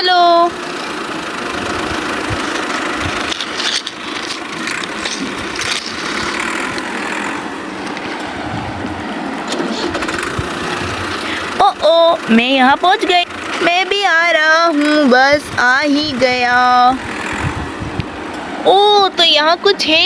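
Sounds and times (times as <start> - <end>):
toy wheels rolling and rattling: 0.7 - 8.4.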